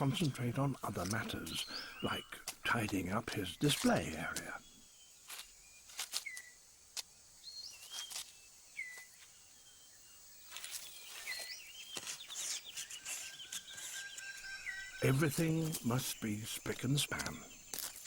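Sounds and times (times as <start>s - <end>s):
high insect hum: 0.0s - 18.0s
whistled bird calls: 10.8s - 16.4s.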